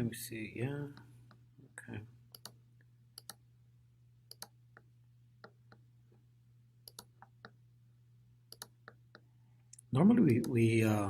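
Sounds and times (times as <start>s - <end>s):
low steady hum: 0.0s - 11.0s
computer mouse clicks: 2.3s - 2.6s, 3.2s - 3.4s, 4.3s - 5.8s, 6.8s - 7.6s, 8.5s - 9.3s, 10.2s - 10.6s.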